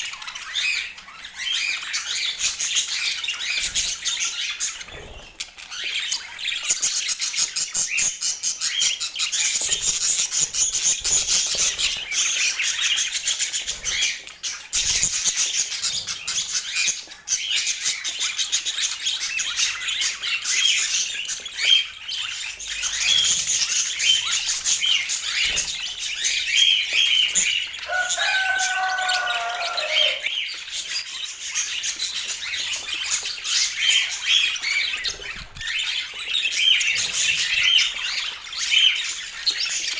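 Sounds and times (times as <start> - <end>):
budgerigars chattering: 0.0 - 39.9
longer lower bird call: 27.9 - 30.3.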